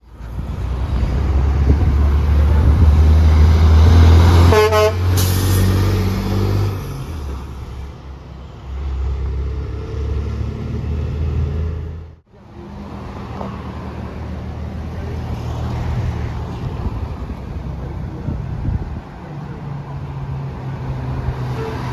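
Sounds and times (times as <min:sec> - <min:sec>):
heavy truck engine rumble: 0:00.0 - 0:21.9
passing traffic: 0:00.0 - 0:21.9
truck horn blast: 0:03.8 - 0:05.8, 0:21.5 - 0:21.9.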